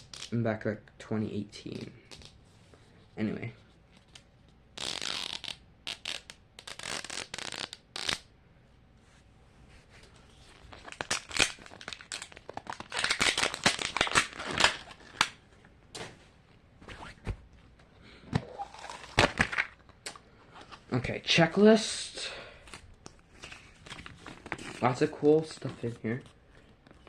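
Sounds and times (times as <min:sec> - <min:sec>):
plastic wrapper crinkling: 0:10.6 - 0:15.4.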